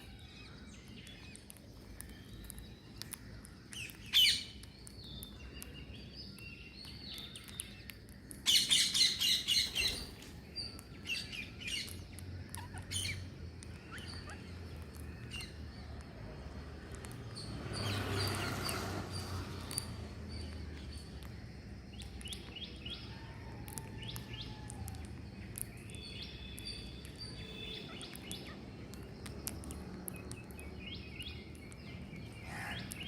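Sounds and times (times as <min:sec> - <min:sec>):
parrots chirping and squawking: 0:08.3 - 0:16.0, 0:27.0 - 0:30.8, 0:31.4 - 0:33.0.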